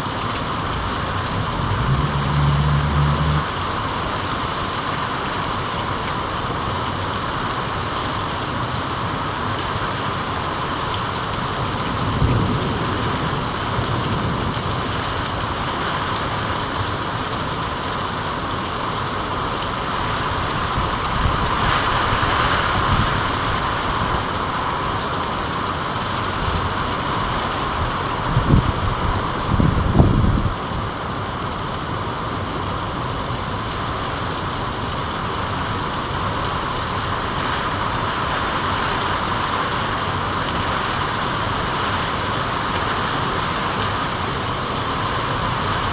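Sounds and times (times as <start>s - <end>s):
steady rain falling: 0.0s - 45.9s
low rumble: 0.3s - 3.6s.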